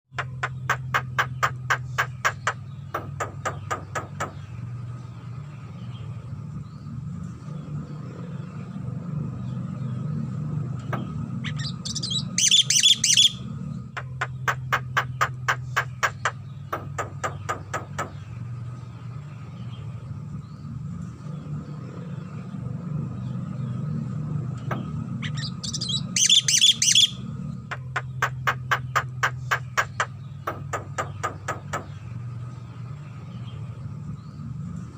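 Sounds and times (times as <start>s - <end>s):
bird chattering: 0.1s - 4.5s, 10.9s - 13.4s, 14.0s - 18.2s, 24.7s - 32.0s
bird clicking calls: 0.1s - 4.5s, 10.8s - 18.3s, 24.6s - 32.0s.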